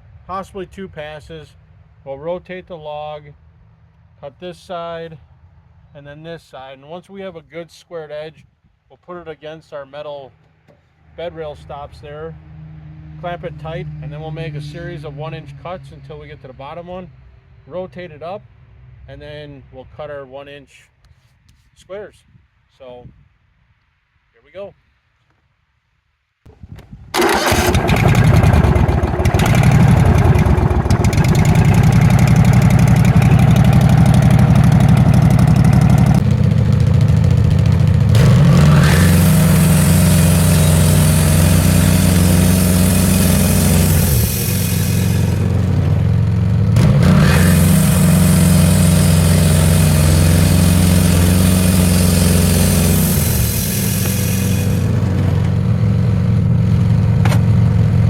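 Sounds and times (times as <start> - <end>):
sawmill engine running: 27.2 - 58.0
band blade cutting log: 38.2 - 45.4, 46.8 - 54.9.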